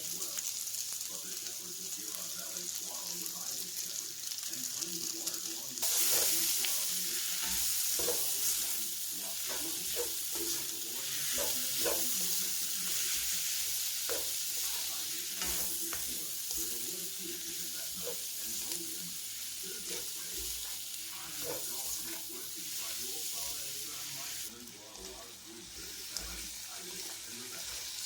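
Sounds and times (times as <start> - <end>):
stir-fry sizzling in a pan: 0.0 - 28.0
utensil scraping and tapping pan: 9.4 - 13.3.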